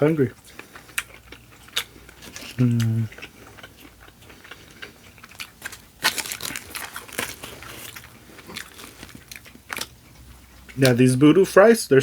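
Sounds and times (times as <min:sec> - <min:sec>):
crunchy fries being chewed: 0:00.0 - 0:11.1.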